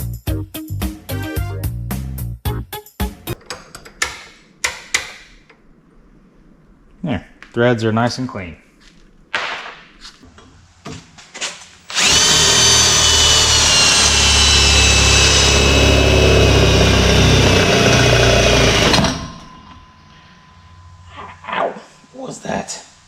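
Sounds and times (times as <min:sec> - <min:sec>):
power tool whining: 0:11.9 - 0:20.2.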